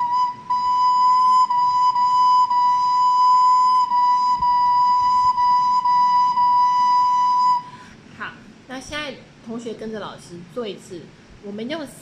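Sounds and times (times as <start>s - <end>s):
recorder playing tongued notes: 0.0s - 7.7s.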